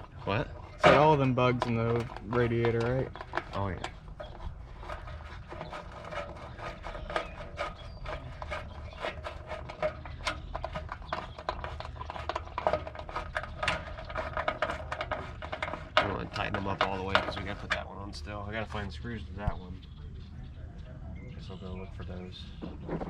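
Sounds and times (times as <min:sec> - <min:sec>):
hand tools clicking and tapping: 0:00.0 - 0:17.8.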